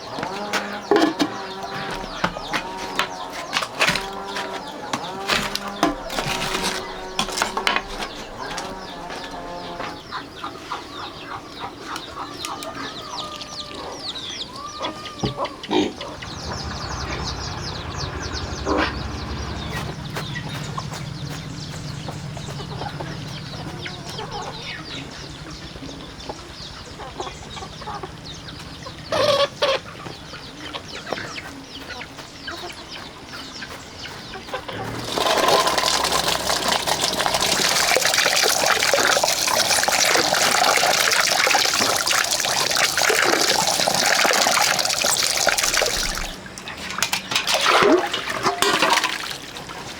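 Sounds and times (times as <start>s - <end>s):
chickens clucking: 0.0s - 49.9s
low steady hum: 15.7s - 31.0s.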